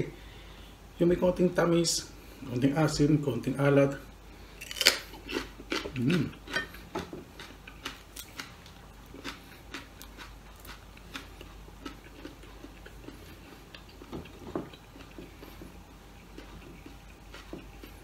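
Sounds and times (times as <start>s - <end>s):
chewing and food handling clicks: 4.6s - 18.0s
sharp crunches of chewing: 4.6s - 18.0s.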